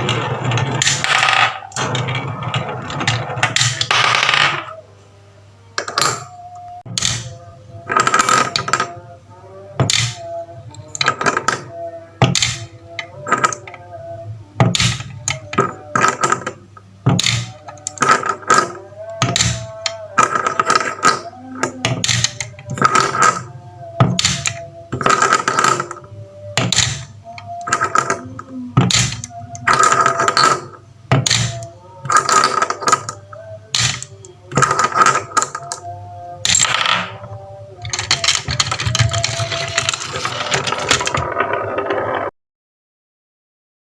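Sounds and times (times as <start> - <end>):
marbles clattering down wooden run: 37.9 - 42.2.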